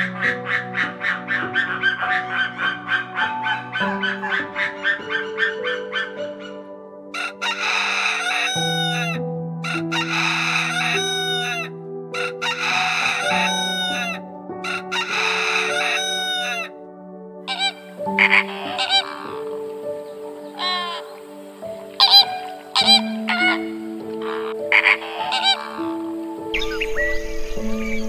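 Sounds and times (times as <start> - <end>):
background music sustained notes: 0.0 - 28.0
loud bird calls: 17.5 - 28.0.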